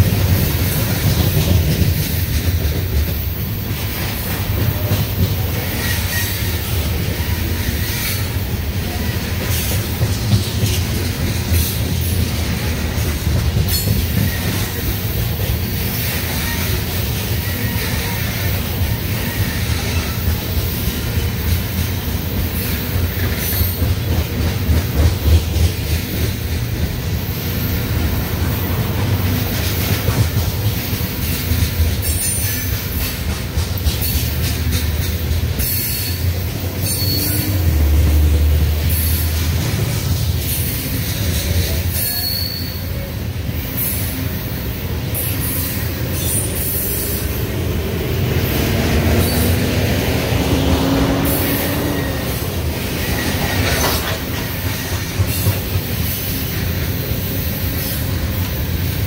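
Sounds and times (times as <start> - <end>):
train wheels rumbling on rail: 0.0 - 59.0
high wheel squeals: 4.3 - 9.9, 13.7 - 21.6, 35.5 - 39.7, 40.4 - 47.6, 49.1 - 49.8, 50.6 - 58.5.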